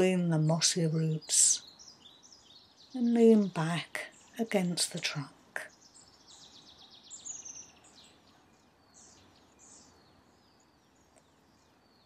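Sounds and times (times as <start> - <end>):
woodland birdsong: 0.0 - 12.0.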